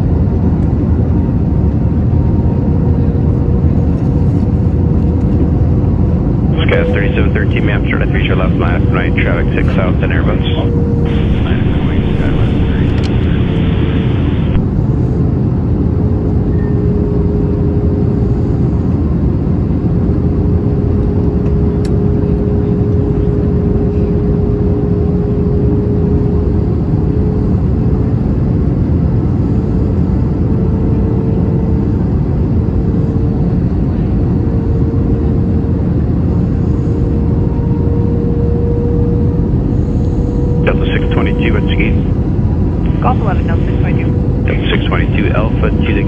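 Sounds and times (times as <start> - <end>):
airplane cabin engine rush: 0.0 - 46.0
faint steady hum: 6.5 - 15.3, 36.4 - 46.0.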